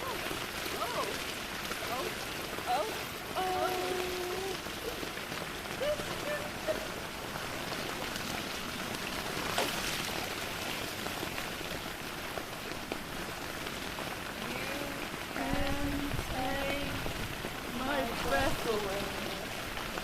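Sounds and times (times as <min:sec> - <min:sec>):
rain falling on surfaces: 0:00.0 - 0:20.0
sharp water splash: 0:07.7 - 0:11.4.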